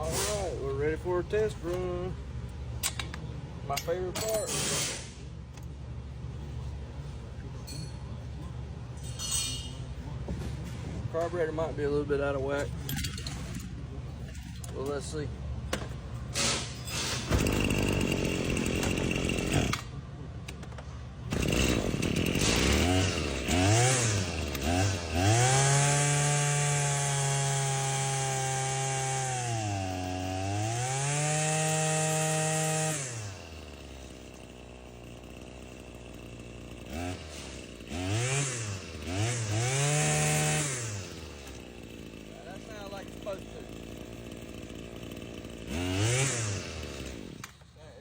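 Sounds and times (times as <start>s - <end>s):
string trimmer engine revving: 17.2s - 19.9s, 21.3s - 47.6s.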